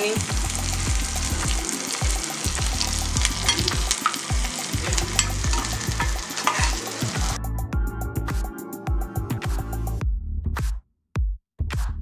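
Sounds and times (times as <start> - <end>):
food sizzling in hot oil: 0.0 - 7.4
spatula scraping pan: 2.8 - 7.4.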